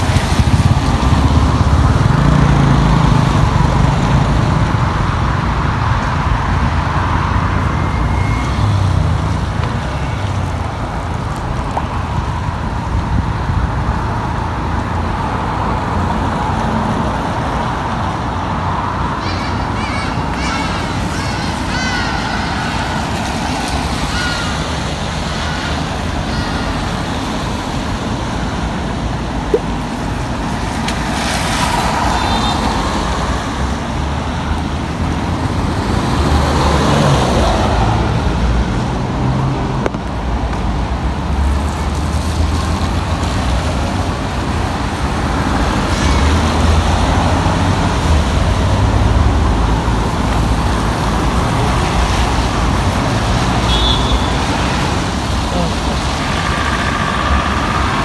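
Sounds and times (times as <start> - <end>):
traffic on wet street: 0.0 - 58.0
vehicles passing close: 0.0 - 58.0.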